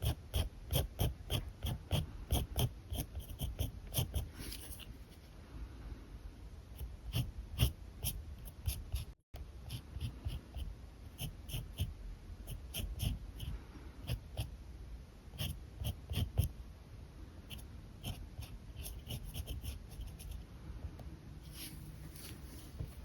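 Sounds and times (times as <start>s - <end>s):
marker scratching on paper: 0.0s - 4.9s, 6.8s - 11.9s, 12.5s - 14.5s, 15.4s - 16.5s, 17.5s - 20.4s.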